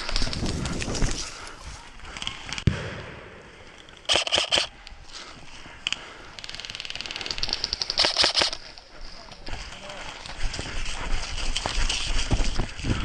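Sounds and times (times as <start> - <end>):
airsoft rifle full-auto burst: 4.1 - 4.7, 7.7 - 8.6.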